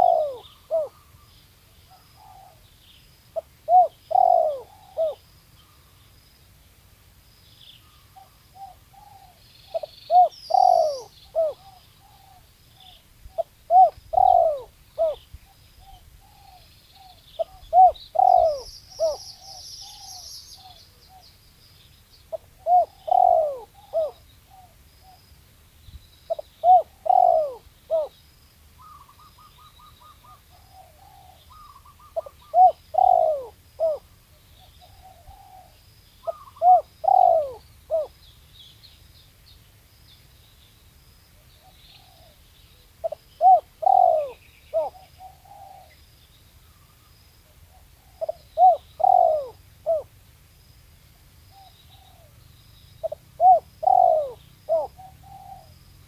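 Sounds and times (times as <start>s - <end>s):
rapid bird trill: 0.0s - 1.2s, 7.9s - 12.4s
dove cooing: 0.0s - 1.3s, 1.9s - 2.7s, 3.4s - 5.8s, 8.1s - 21.2s, 22.3s - 25.2s, 26.3s - 28.2s, 28.8s - 38.2s, 41.6s - 46.0s, 46.7s - 50.1s, 51.5s - 52.4s, 53.0s - 56.0s
small birds chirping faintly: 0.0s - 56.0s.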